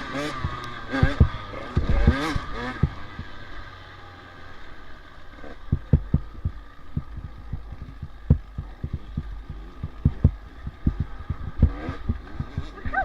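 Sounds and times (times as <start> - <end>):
dull low thumps: 0.3 - 3.4, 5.6 - 13.0.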